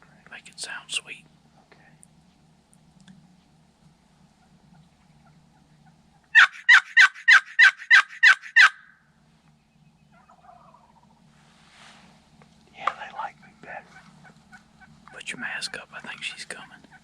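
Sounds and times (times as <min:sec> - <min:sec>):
turkey call hen yelps: 0:05.6 - 0:09.0, 0:10.1 - 0:11.1.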